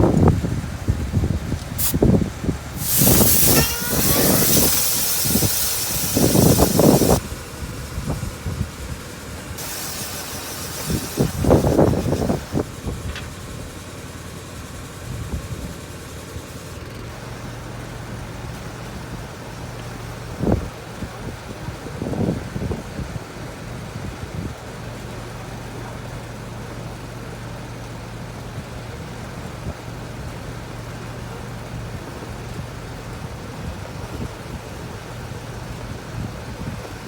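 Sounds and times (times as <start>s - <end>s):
loud rushing air: 0.0s - 9.0s, 9.6s - 13.1s.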